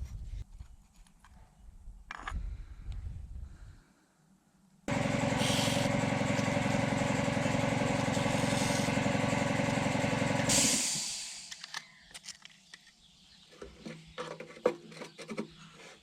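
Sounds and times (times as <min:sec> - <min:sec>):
motor running with fast pulse: 0:04.9 - 0:11.7.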